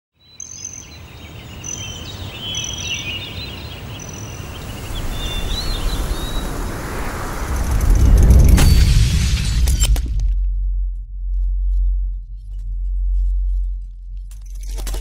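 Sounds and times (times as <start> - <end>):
songbirds chirping and whistling: 0.2 - 7.3
steady low rumble: 4.6 - 15.0.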